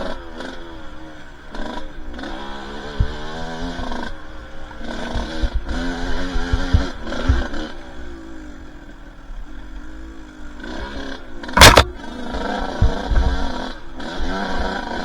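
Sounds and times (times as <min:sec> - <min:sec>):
dirt bike engine revving: 0:11.6 - 0:12.0
loud scraping hit: 0:11.6 - 0:12.0
low thumps: 0:11.6 - 0:12.0.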